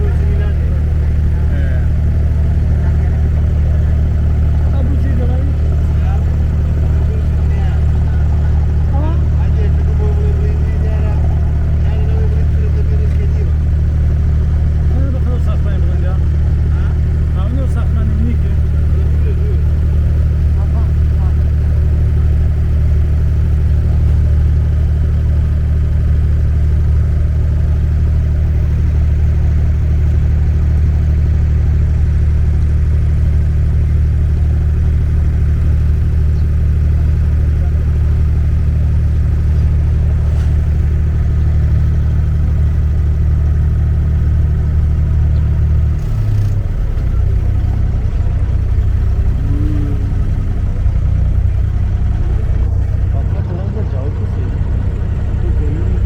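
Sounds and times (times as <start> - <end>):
boat diesel engine humming: 0.0 - 56.0.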